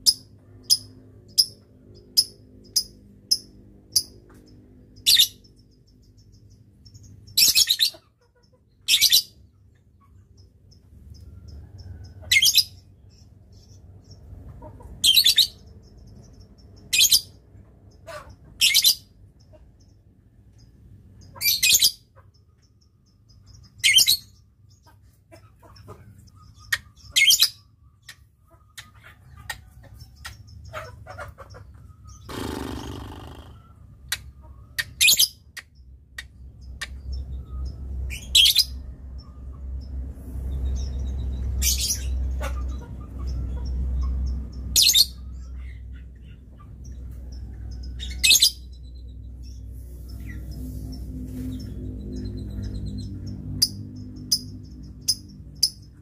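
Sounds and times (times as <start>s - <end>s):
bird chirping shrilly: 32.2s - 33.8s
low rumble: 48.8s - 55.6s.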